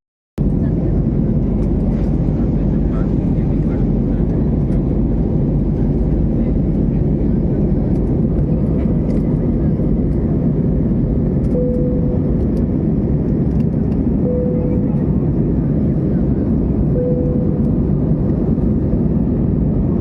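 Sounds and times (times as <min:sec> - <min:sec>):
airliner cabin engine noise: 0:00.4 - 0:20.0.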